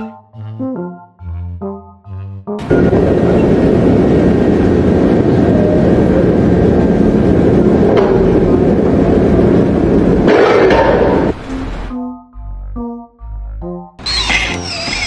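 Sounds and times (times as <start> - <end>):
loud engine humming: 2.6 - 11.9, 14.0 - 15.0.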